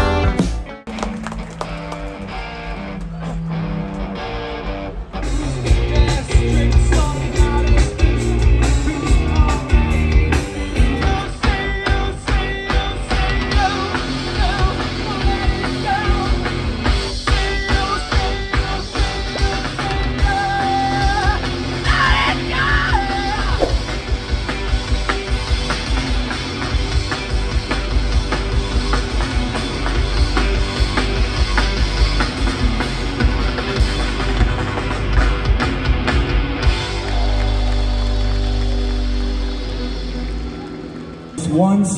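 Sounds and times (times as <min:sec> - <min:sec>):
live rock band playing loud: 0:00.0 - 0:41.4
electric guitars: 0:00.0 - 0:41.9
steady drum beat: 0:05.4 - 0:37.2.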